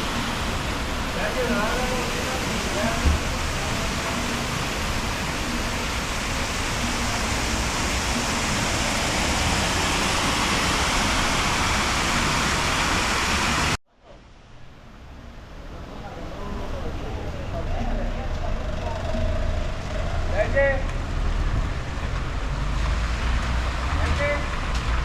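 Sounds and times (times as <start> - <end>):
loud rushing noise: 0.0 - 13.8.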